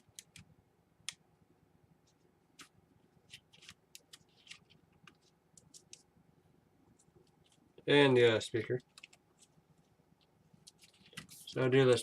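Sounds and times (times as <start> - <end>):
light rustling of plastic parts: 2.0 - 6.1, 6.9 - 12.0.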